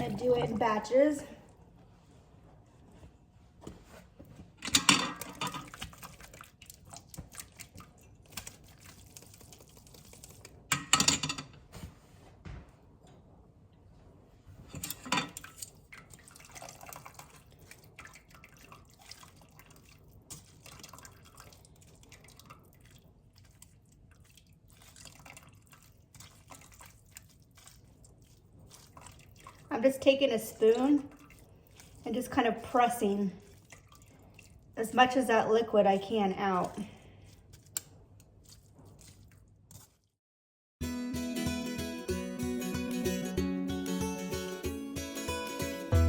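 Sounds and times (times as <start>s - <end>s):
liquid dripping: 5.2s - 10.6s, 15.4s - 35.2s
broth pouring through strainer: 5.8s - 10.6s, 16.0s - 29.7s.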